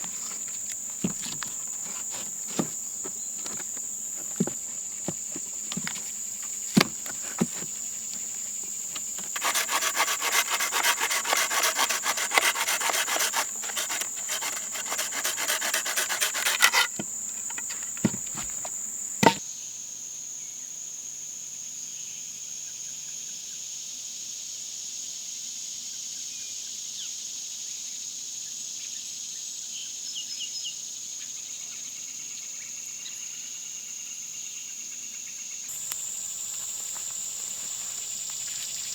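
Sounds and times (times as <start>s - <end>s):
crickets trilling: 0.0s - 19.4s, 35.7s - 38.9s
hand saw cutting wood: 0.0s - 19.4s, 35.7s - 38.9s
sharp knocks: 9.0s - 19.4s.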